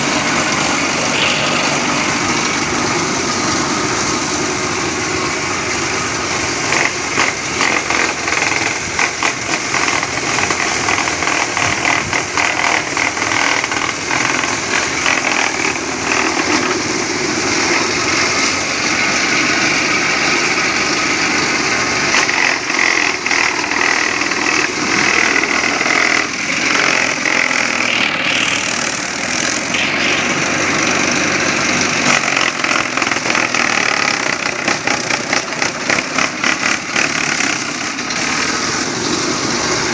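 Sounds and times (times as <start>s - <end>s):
thresher engine running: 0.0s - 39.9s
shelling drum rattling: 6.6s - 18.4s.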